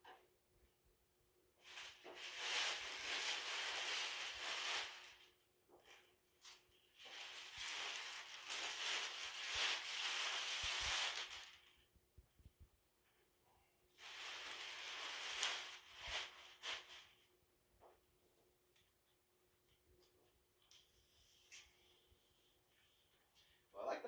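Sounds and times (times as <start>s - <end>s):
packaging material rustling: 1.6s - 11.9s, 14.0s - 17.4s.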